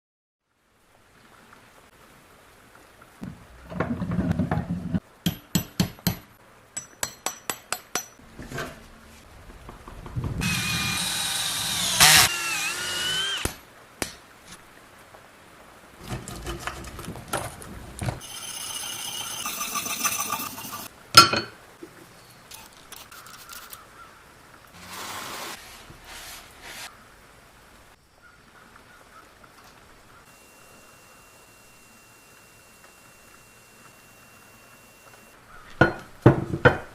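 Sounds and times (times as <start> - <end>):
metal clanks and taps: 5.3 - 8.8
electric power tool whining: 10.4 - 13.6, 30.3 - 35.4.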